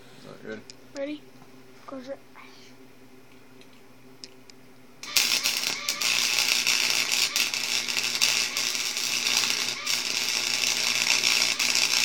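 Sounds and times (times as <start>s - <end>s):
electric arc welder crackling: 5.0s - 12.0s.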